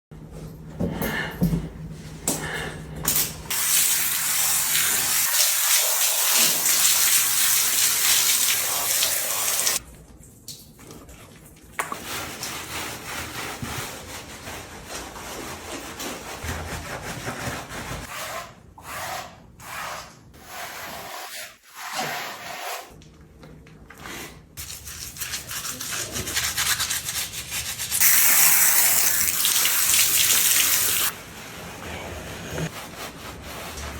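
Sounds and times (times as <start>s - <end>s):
water spraying on cow hide: 3.5s - 9.8s, 28.0s - 31.1s
rubbing and splashing: 24.6s - 31.6s.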